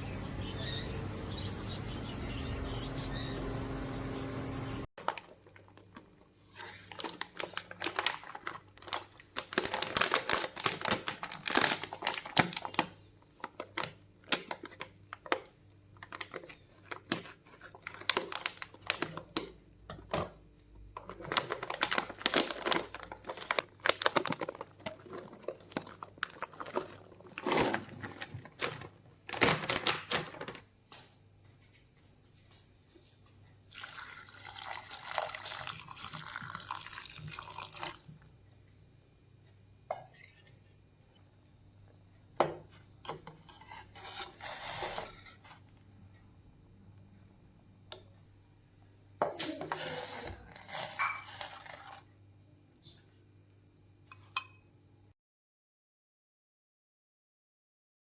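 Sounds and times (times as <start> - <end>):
packaging crinkling and rustling: 5.0 - 19.5, 20.9 - 30.8, 49.4 - 52.1.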